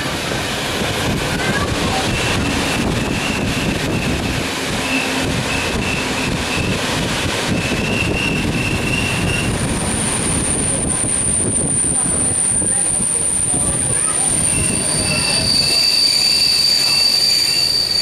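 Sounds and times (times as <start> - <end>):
train rumbling: 0.0 - 18.0
high-pitched brake squeal: 12.6 - 18.0.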